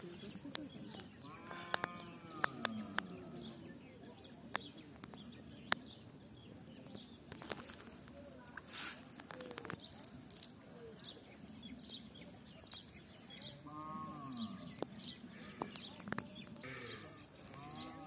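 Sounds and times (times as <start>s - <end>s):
small birds chirping: 0.0s - 18.0s
farm animal bleating: 1.2s - 3.5s, 16.6s - 18.0s.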